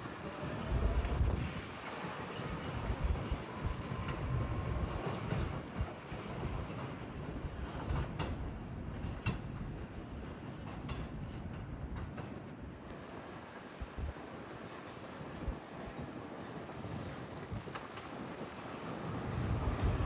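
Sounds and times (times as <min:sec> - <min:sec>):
subway train rumble: 0:00.0 - 0:20.0
wheels clicking over rail joints: 0:00.0 - 0:20.0.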